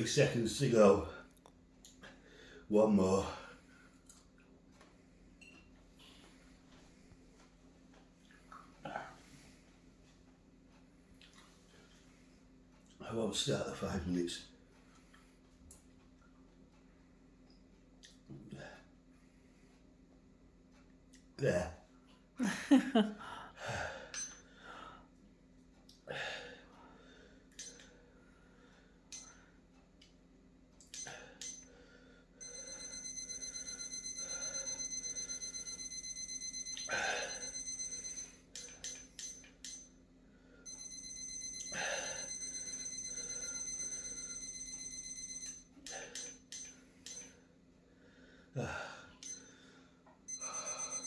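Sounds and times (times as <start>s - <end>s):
electronic timer alarm ringing: 24.1s - 24.5s, 27.6s - 28.0s, 29.1s - 29.4s, 30.9s - 31.8s, 32.4s - 47.5s, 49.2s - 51.0s.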